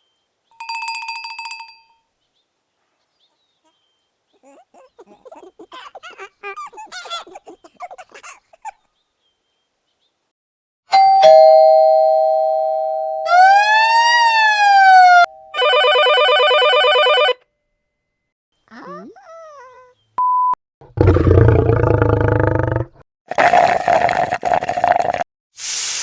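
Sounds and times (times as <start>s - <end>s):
two-tone doorbell ding-dong: 10.9s - 13.4s.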